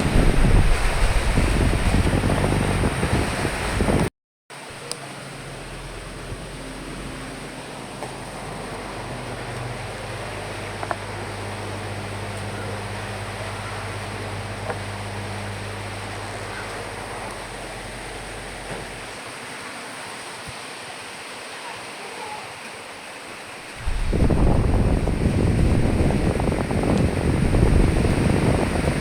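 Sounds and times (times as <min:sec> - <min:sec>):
rain hissing: 0:00.0 - 0:29.0
wind: 0:00.0 - 0:29.0
low hum: 0:05.1 - 0:19.2, 0:23.8 - 0:29.0.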